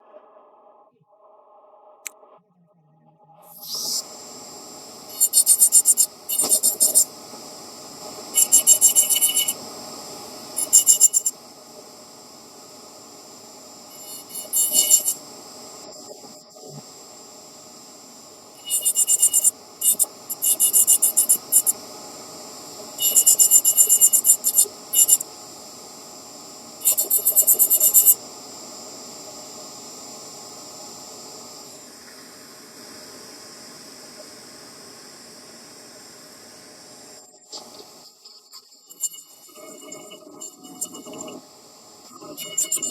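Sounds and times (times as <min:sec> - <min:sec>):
high ticking grinding: 0:05.1 - 0:07.1, 0:08.4 - 0:09.6, 0:10.6 - 0:11.3, 0:13.9 - 0:15.2, 0:18.6 - 0:21.8, 0:23.0 - 0:25.2, 0:26.8 - 0:28.2
rotary tool humming: 0:05.1 - 0:07.1, 0:08.2 - 0:11.3, 0:13.9 - 0:15.9, 0:18.6 - 0:21.8, 0:23.0 - 0:25.3, 0:26.8 - 0:28.2.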